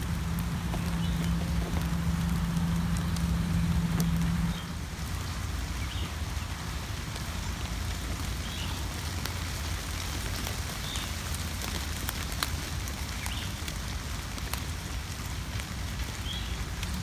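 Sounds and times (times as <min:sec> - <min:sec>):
low rumble: 0:00.0 - 0:05.8
rain on leaves and grass: 0:00.0 - 0:17.0
raindrops ticking: 0:00.0 - 0:17.0.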